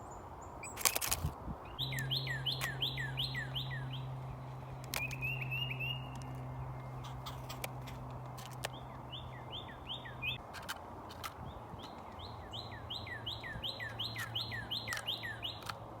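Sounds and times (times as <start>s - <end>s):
sharp clicks: 0.6s - 1.3s, 4.8s - 5.4s, 13.9s - 15.9s
small bird chirping: 1.7s - 15.8s.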